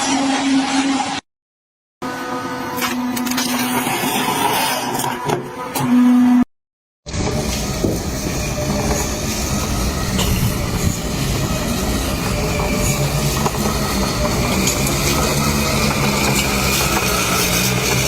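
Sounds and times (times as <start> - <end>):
heavy machine rumbling: 7.1 - 18.0.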